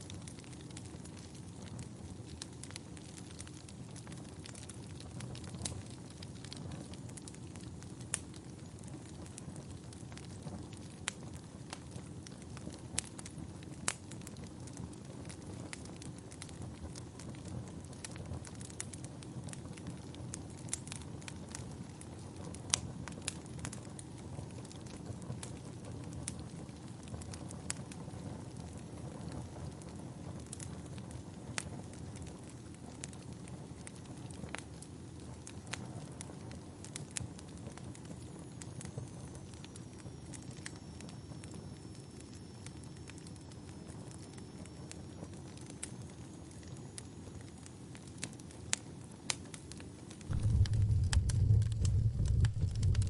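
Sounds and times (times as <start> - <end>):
fire crackling and popping: 0.0 - 53.0
low rumble of flames: 0.0 - 53.0
faint high hiss: 50.3 - 53.0.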